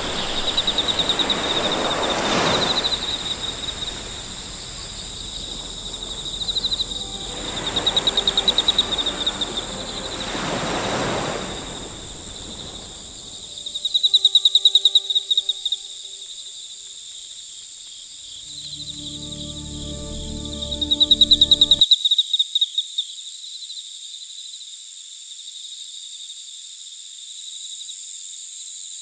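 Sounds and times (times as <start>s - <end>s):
soft rushing noise: 0.0s - 16.4s
insects chirping in fast trills: 0.0s - 21.9s
high-pitched insect drone: 0.2s - 17.2s, 18.3s - 21.8s.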